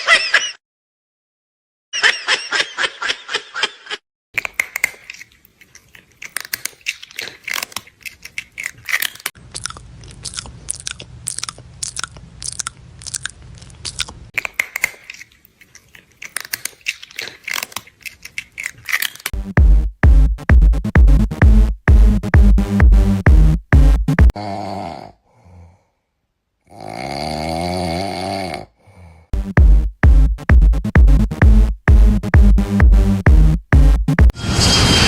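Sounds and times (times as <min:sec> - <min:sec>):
burst of laughter: 0:00.0 - 0:00.6, 0:02.0 - 0:04.0
crunchy chewing: 0:04.4 - 0:19.3.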